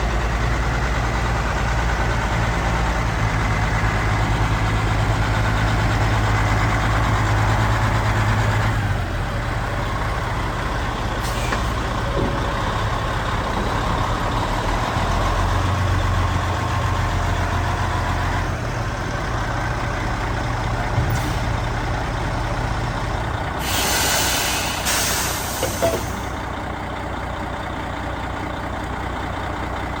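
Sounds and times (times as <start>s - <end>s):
diesel truck engine running: 0.0s - 30.0s
air brake hiss: 11.2s - 11.8s, 23.6s - 26.4s.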